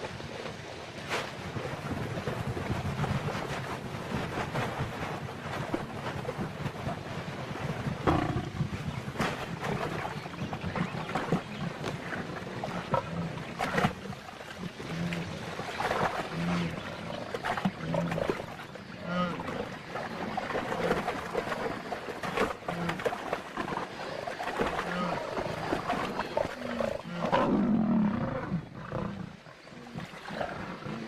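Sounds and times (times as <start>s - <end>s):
lioness growling: 8.0s - 8.8s, 24.8s - 31.0s.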